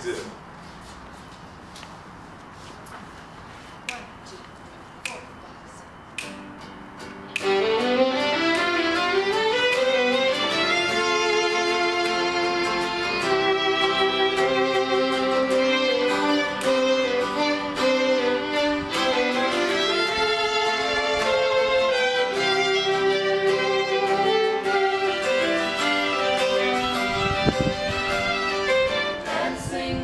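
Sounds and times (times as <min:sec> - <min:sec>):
live band instrumental: 0:07.3 - 0:29.2.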